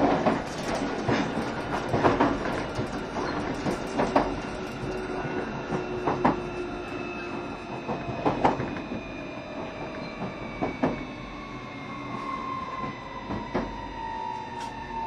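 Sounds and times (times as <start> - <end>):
train wheels clicking over rail joints: 0.0 - 6.9
train rumble: 0.0 - 15.0.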